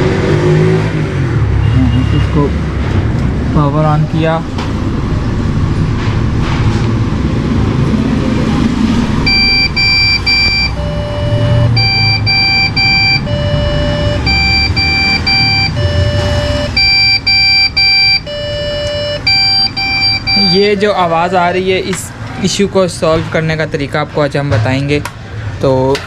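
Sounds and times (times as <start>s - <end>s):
computer cooling fans: 0.0s - 26.0s
computer error beeps: 9.2s - 21.8s.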